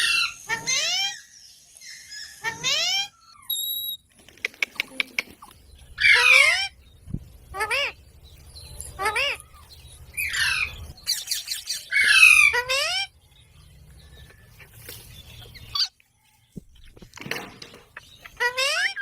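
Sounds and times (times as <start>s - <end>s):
parrot squawking: 0.0s - 3.5s, 6.0s - 6.8s, 7.5s - 8.0s, 8.9s - 13.1s, 18.0s - 19.0s.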